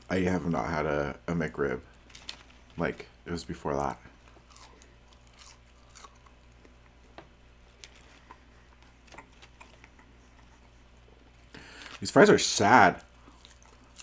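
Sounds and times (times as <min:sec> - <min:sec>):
person chewing food: 0:04.1 - 0:12.0, 0:13.0 - 0:14.0.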